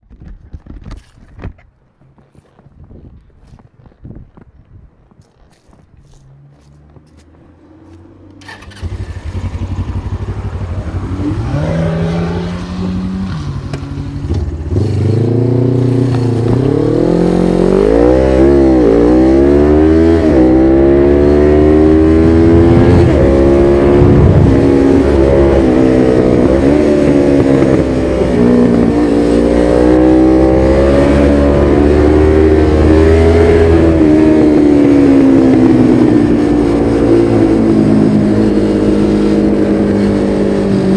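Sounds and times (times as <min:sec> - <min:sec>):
motorcycle engine running: 0:06.1 - 0:40.9.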